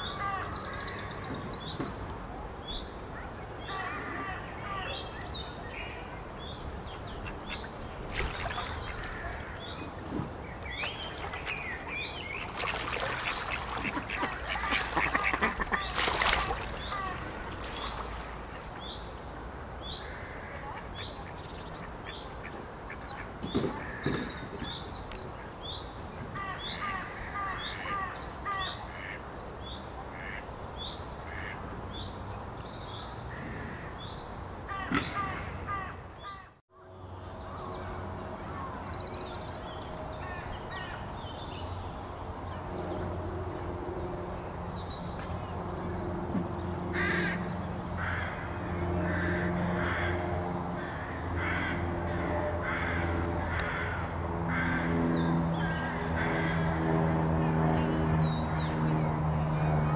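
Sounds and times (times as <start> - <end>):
steady low hum: 2.1 - 28.4
birds calling rapidly: 2.6 - 41.9, 44.3 - 59.9
harsh caw-like calls: 8.6 - 9.7, 20.0 - 20.6, 34.7 - 36.5, 46.9 - 56.9.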